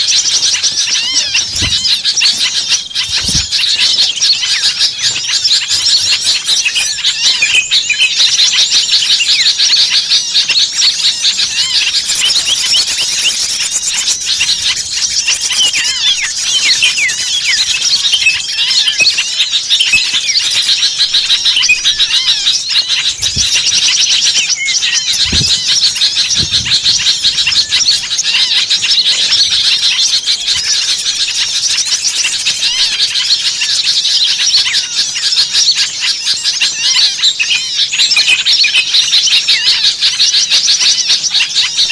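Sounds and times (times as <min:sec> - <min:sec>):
songbirds chirping: 0:00.0 - 0:41.9
low thuds: 0:25.2 - 0:27.4.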